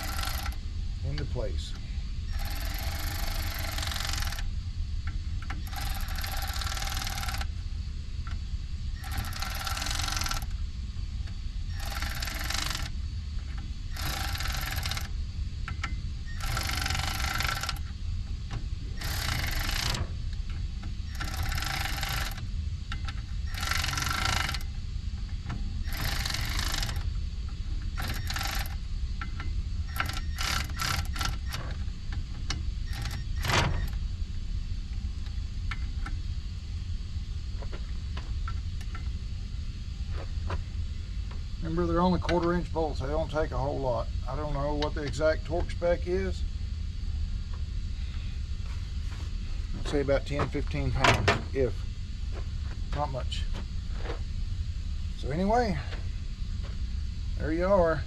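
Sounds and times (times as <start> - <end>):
ratchet clicking: 0.0 - 0.6, 2.3 - 4.5, 5.4 - 7.5, 9.0 - 10.5, 11.7 - 13.0, 13.9 - 15.1, 15.7 - 18.0, 19.0 - 20.0, 21.1 - 24.7, 25.8 - 27.1, 27.9 - 31.7, 32.5 - 33.9
steady low hum: 0.0 - 58.0.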